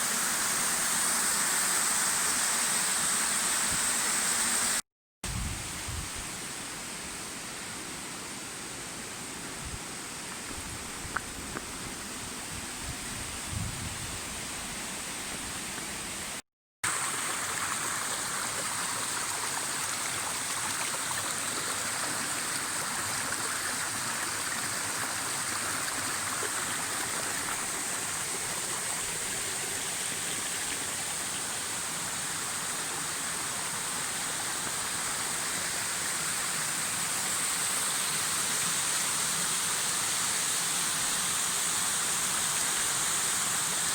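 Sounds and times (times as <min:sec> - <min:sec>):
waterfall rushing water: 0:16.0 - 0:43.9.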